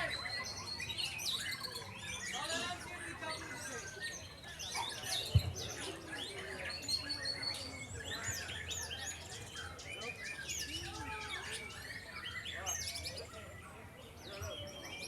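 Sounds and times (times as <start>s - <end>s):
birds singing in chorus: 0.0s - 15.0s.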